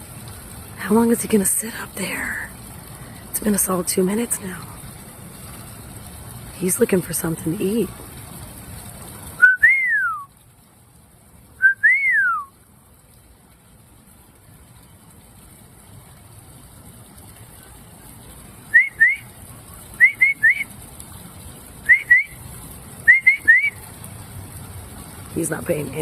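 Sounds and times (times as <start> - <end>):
person whistling: 9.4 - 10.3, 11.6 - 12.5, 18.7 - 19.2, 20.0 - 20.6, 21.9 - 22.4, 23.1 - 23.8.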